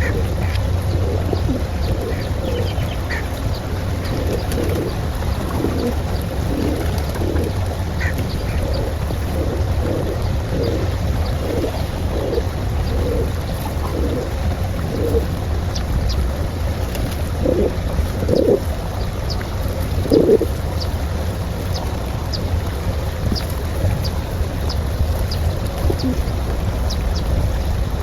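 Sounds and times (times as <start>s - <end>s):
pigeons cooing: 0.0s - 16.4s, 17.0s - 19.0s, 19.8s - 20.5s, 25.8s - 27.6s
small birds chirping: 0.0s - 21.0s, 23.2s - 27.7s
wind on microphone: 0.0s - 28.0s.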